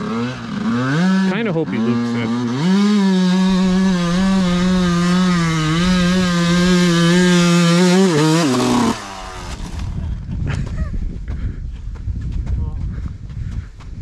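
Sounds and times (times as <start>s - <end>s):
two-stroke dirt bike engine revving: 0.0s - 10.2s.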